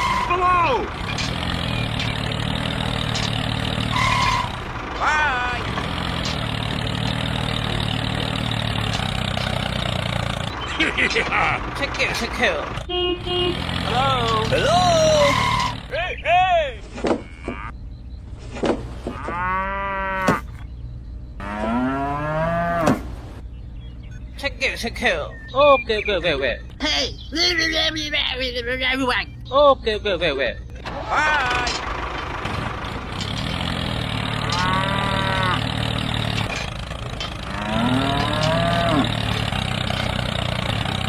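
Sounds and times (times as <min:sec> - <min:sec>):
cow mooing: 0:17.2 - 0:17.7, 0:19.1 - 0:20.4, 0:21.4 - 0:23.0, 0:34.4 - 0:36.0, 0:37.3 - 0:39.6
low engine-like drone: 0:36.4 - 0:39.3.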